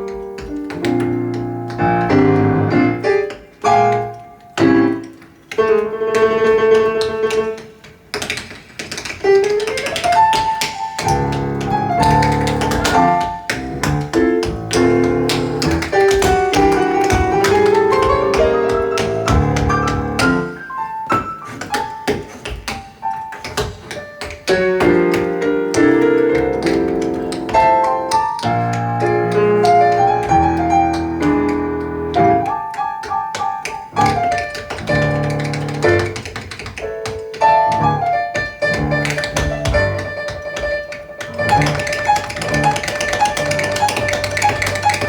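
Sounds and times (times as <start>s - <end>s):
jazz piano: 0.0s - 45.0s
tap shoes clicking: 0.0s - 45.0s.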